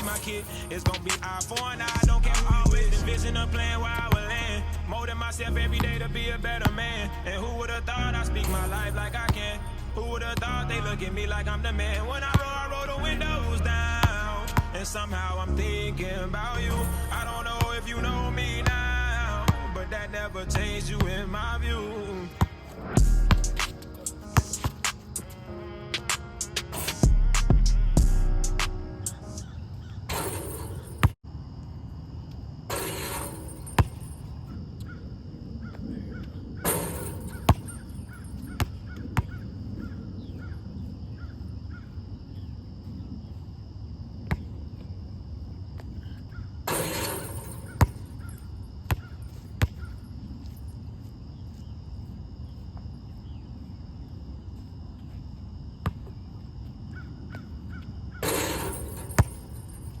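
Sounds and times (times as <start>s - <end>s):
basketball bouncing and hitting rim: 0.0s - 3.0s, 6.6s - 7.0s, 8.4s - 9.6s, 12.3s - 12.5s, 22.4s - 25.2s, 29.4s - 31.2s, 32.7s - 34.3s, 36.6s - 39.4s, 44.2s - 44.5s, 46.7s - 50.6s, 58.2s - 60.0s
high insect hum: 0.0s - 60.0s.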